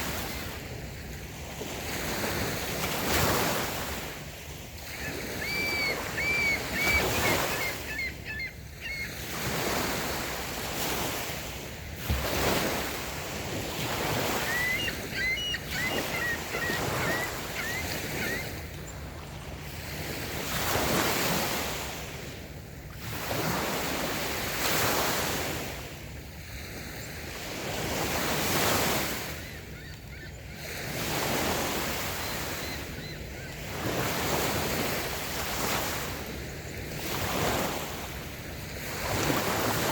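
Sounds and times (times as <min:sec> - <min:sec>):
waves washing up a beach: 0:00.0 - 0:39.9
bird chirping: 0:04.9 - 0:09.2, 0:14.5 - 0:19.0.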